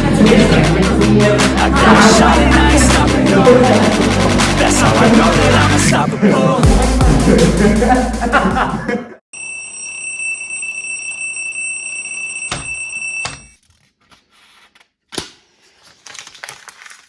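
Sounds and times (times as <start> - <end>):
electronic alarm high tone: 9.3 - 13.6.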